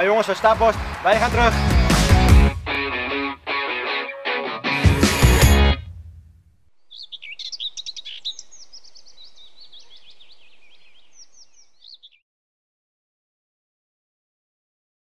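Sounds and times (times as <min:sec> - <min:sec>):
faint outdoor hiss: 0:05.8 - 0:12.0
birds chirping: 0:06.7 - 0:12.2.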